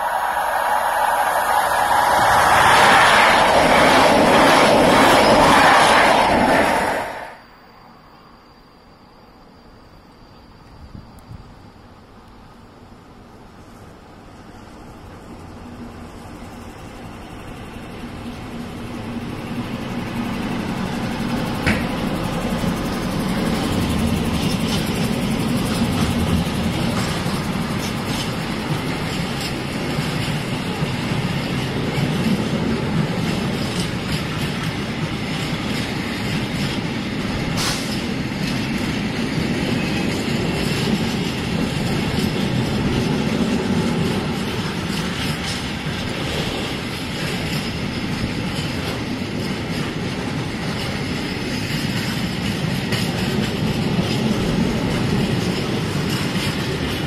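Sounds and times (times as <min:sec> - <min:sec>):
diesel locomotive engine: 0:00.0 - 0:57.0
train wheels clicking: 0:14.8 - 0:57.0
freight wagons rumbling past: 0:17.3 - 0:57.0.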